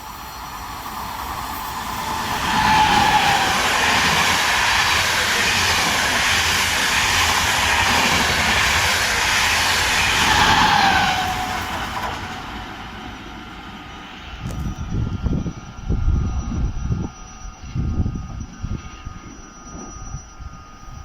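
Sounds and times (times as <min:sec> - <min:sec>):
train wheels rushing on rails: 0:00.0 - 0:20.6
brief high squeals: 0:10.2 - 0:14.2.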